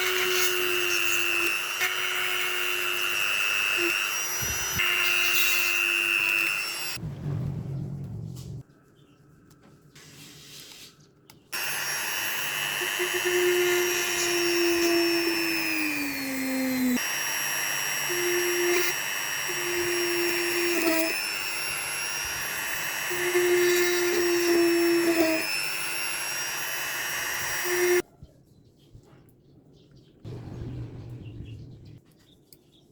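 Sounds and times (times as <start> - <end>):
small electric motor whining: 0.0 - 7.0, 11.6 - 28.0
low hum: 7.0 - 8.6.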